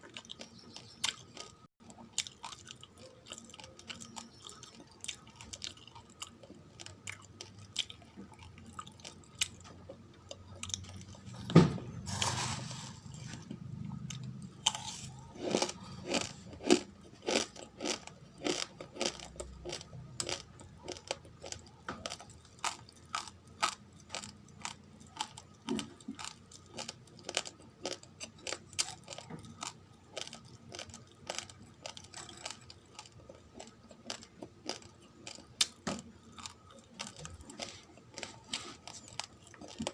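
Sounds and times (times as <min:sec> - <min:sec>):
raw rice being chewed: 0:13.0 - 0:39.9.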